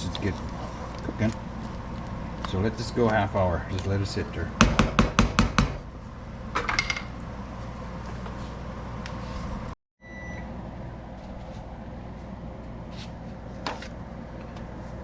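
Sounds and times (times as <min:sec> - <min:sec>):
low kitchen hum: 0:00.0 - 0:15.0
short electronic beep: 0:10.0 - 0:10.4.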